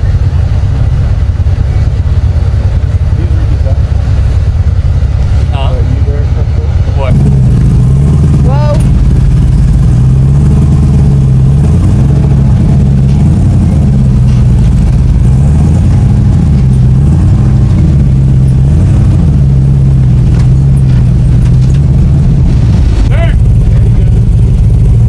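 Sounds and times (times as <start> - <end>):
off-road vehicle engine running: 0.0 - 25.0.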